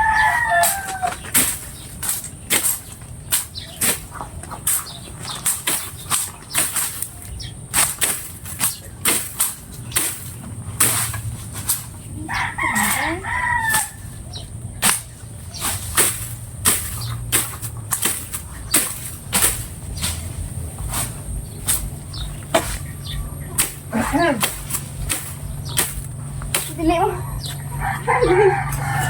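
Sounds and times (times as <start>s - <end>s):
rooster crowing: 0.0s - 1.2s, 12.2s - 14.2s, 27.2s - 29.0s.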